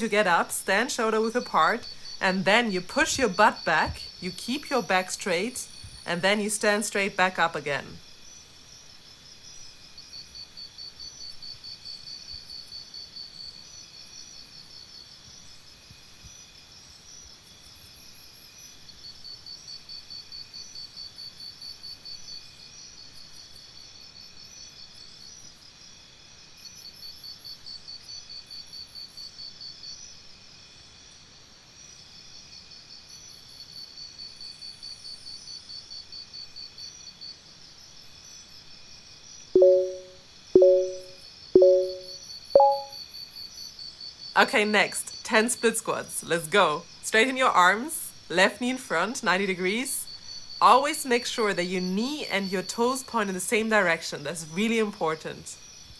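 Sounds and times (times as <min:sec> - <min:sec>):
crickets chirping: 0:00.0 - 0:06.0.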